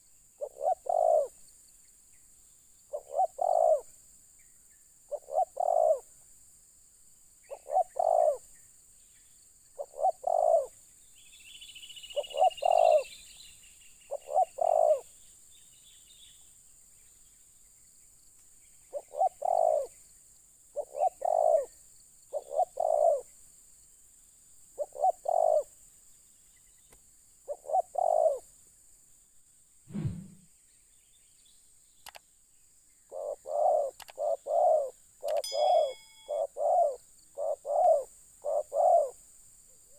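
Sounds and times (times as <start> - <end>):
dove cooing: 0.4 - 1.3, 2.9 - 3.9, 5.1 - 6.1, 7.5 - 8.4, 9.8 - 10.7, 12.1 - 13.1, 14.1 - 15.0, 18.9 - 19.9, 20.8 - 21.7, 22.3 - 23.2, 24.8 - 25.7, 27.5 - 28.4, 33.1 - 39.2
low thump: 29.9 - 30.4.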